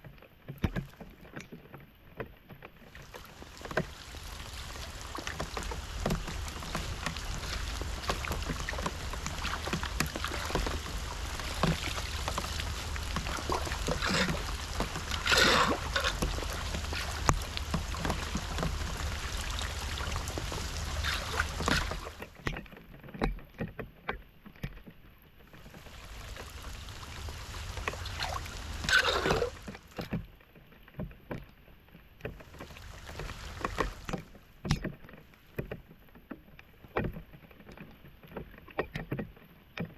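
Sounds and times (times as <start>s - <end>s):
floodwater splashing and sloshing: 0.0s - 23.9s, 24.5s - 39.9s
rushing water: 2.8s - 22.5s, 25.5s - 30.2s, 32.2s - 35.7s.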